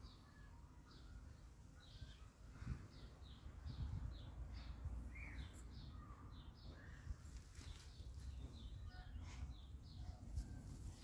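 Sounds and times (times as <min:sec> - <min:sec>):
small birds singing: 0:00.0 - 0:11.0
wind rumble on microphone: 0:01.9 - 0:05.5.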